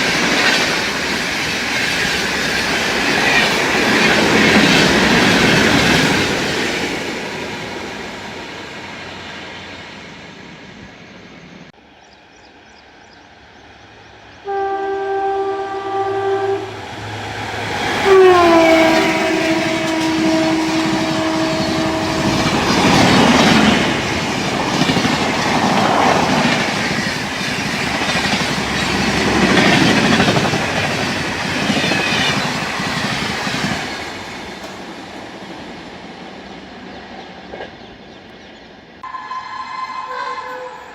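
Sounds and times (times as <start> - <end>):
passing train rumble: 0.0 - 40.9
train horn blasts: 14.4 - 23.0, 39.0 - 40.9.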